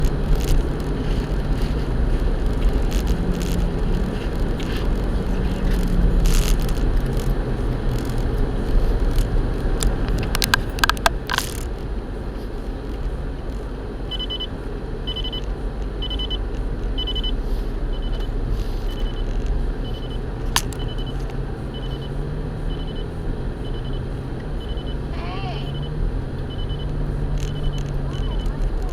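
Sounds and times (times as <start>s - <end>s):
sharp clicks: 0.0s - 11.9s
vehicle engine low rumble: 0.0s - 28.9s
short high beeps: 14.1s - 14.5s, 15.1s - 18.3s, 18.9s - 28.6s.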